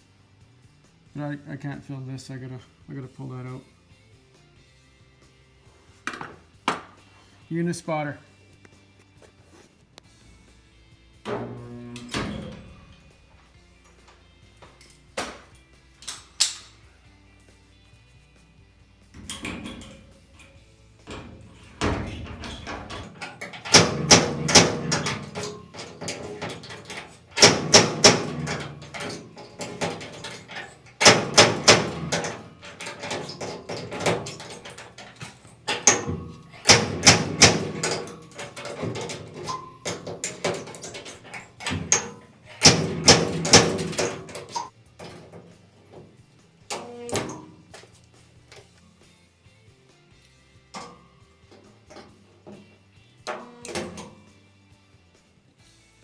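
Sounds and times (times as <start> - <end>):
sharp metallic knocks: 21.1 - 44.7.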